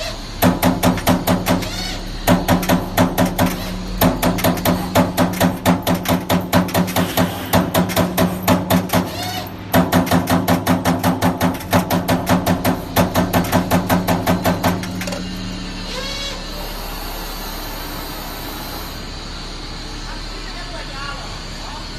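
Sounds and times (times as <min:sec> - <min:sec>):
steady machine hum: 0:00.0 - 0:21.9
punch press punching sheet metal: 0:00.4 - 0:15.3.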